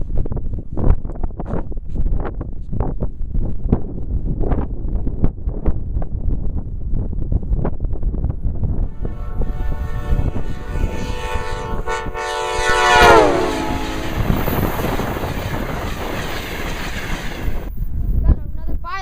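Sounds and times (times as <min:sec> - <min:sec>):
wind on microphone: 0:00.0 - 0:19.0
passing train rushing: 0:08.7 - 0:18.6
locomotive horn: 0:08.8 - 0:16.0.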